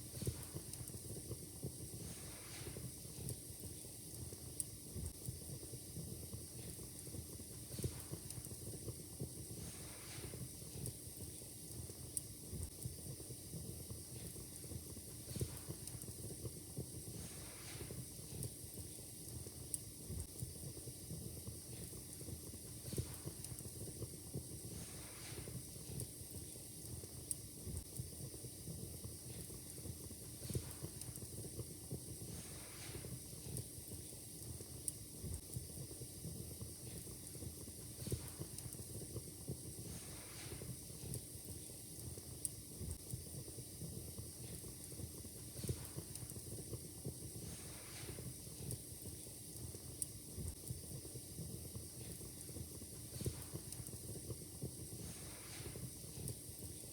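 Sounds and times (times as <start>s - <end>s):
fire crackling: 0.0s - 56.9s
fire hissing: 0.0s - 56.9s
sharp pops of fire: 30.3s - 31.4s, 52.9s - 56.9s.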